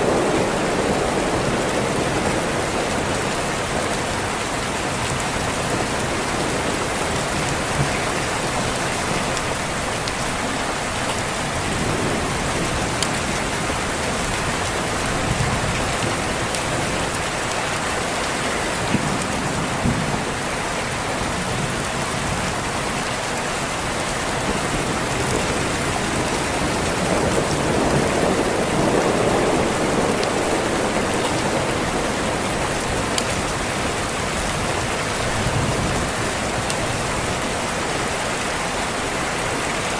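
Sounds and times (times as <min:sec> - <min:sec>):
rain on a window: 0:00.0 - 0:39.9
thunder rolling: 0:24.4 - 0:36.6.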